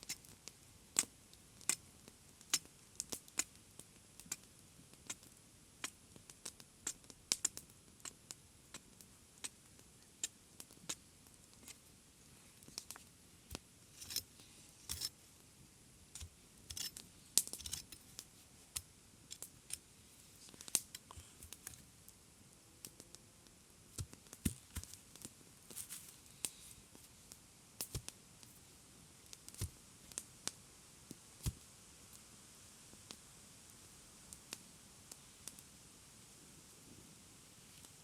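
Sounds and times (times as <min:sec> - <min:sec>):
faint steady background noise: 0:00.0 - 0:38.0.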